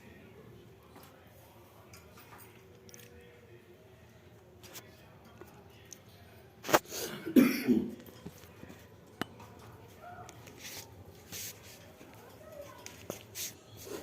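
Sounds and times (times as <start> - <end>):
person coughing: 7.0 - 8.0.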